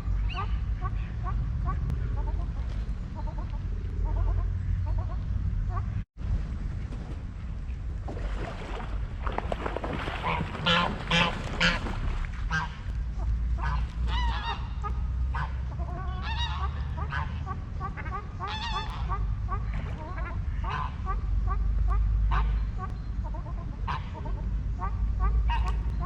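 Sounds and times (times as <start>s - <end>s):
steady low rumble: 0.0s - 26.0s
waterfowl calling: 9.9s - 26.0s.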